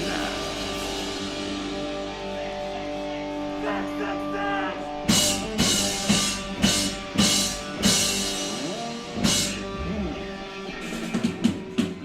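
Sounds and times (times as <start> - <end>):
drum kit hits: 5.1 - 12.0.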